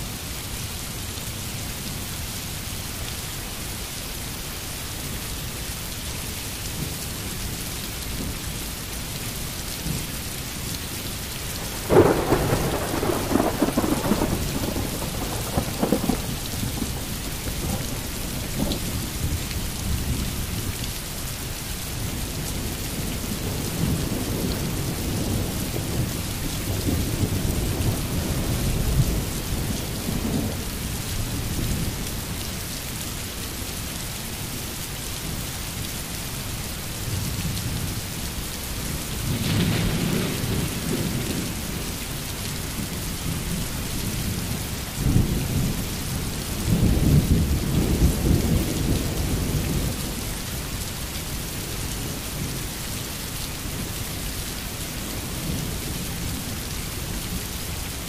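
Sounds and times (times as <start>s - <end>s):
steady rain: 0.0s - 58.0s
rolling thunder: 11.6s - 18.8s, 39.3s - 41.8s.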